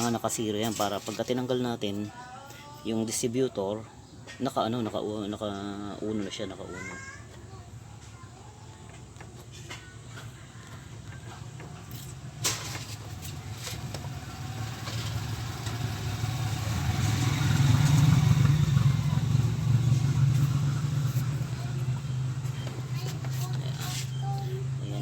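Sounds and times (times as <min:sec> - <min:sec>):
vehicle engine rumbling: 0:07.5 - 0:25.0.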